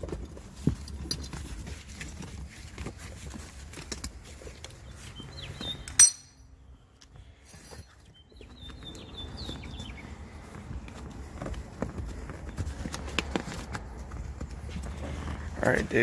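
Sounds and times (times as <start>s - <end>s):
sharp metal on metal clink: 5.9s - 6.5s.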